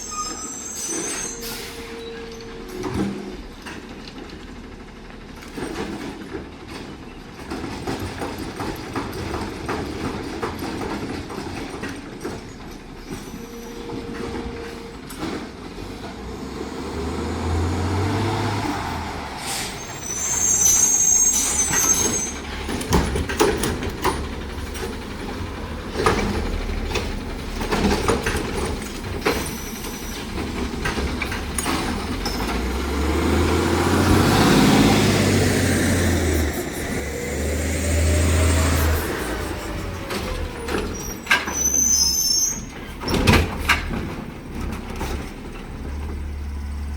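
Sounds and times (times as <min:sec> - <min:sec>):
high squealing hiss: 0:00.0 - 0:02.2, 0:19.3 - 0:22.6
garbage truck diesel engine revving: 0:09.2 - 0:41.2, 0:42.7 - 0:46.9.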